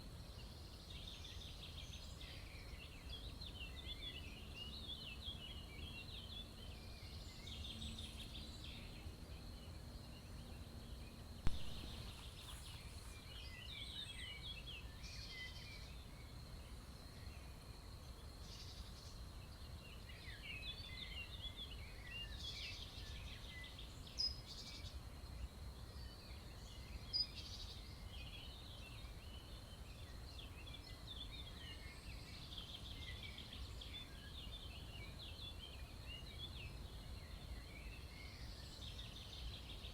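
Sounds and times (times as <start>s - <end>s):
faint high whine: 0.0s - 39.9s
songbirds chirping and twittering: 0.0s - 39.9s
sharp tap: 11.5s - 12.1s.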